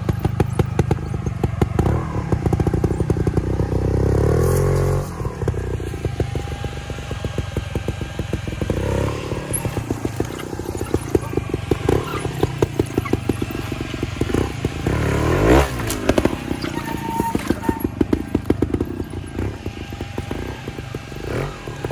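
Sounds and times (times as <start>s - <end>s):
motorcycle engine throttle blips: 0.0s - 21.9s.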